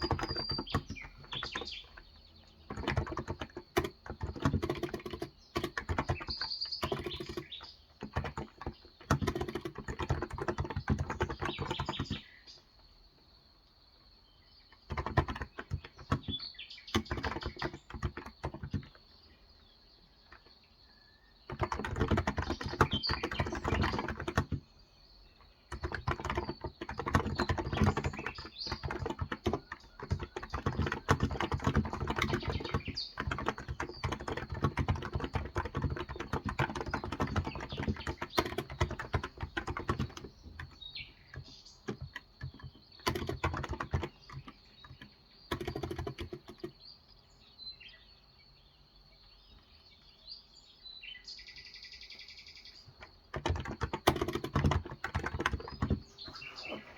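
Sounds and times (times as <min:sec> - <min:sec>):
keyboard typing: 0:00.0 - 0:12.4, 0:14.7 - 0:19.0, 0:21.5 - 0:24.7, 0:25.7 - 0:46.8, 0:53.0 - 0:56.9
birds chirping faintly: 0:00.0 - 0:56.9.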